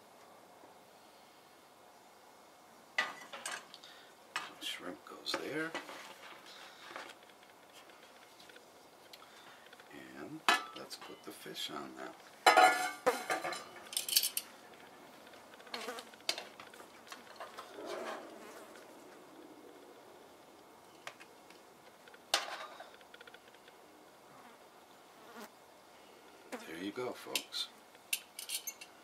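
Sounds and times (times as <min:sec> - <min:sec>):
metal tongs scraping a frying pan: 0:12.5 - 0:14.5, 0:28.1 - 0:28.9.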